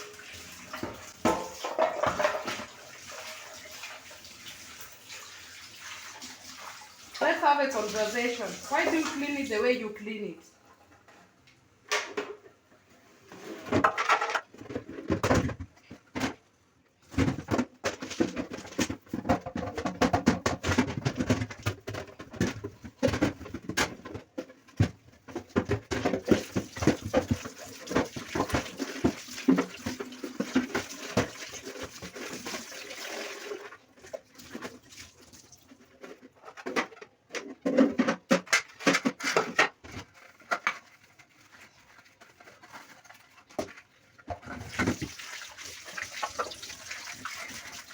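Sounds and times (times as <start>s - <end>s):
water splashing in a bucket: 0.0s - 9.6s, 25.5s - 36.0s, 44.3s - 47.9s
knocks and clatters: 17.1s - 31.3s.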